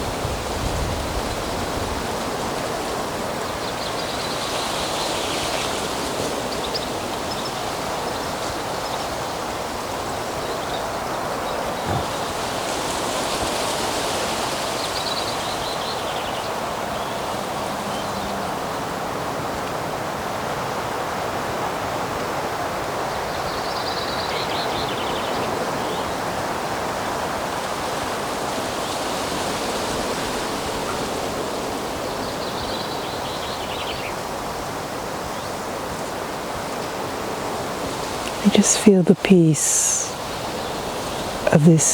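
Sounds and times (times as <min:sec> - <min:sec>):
bird singing: 0:14.8 - 0:19.7.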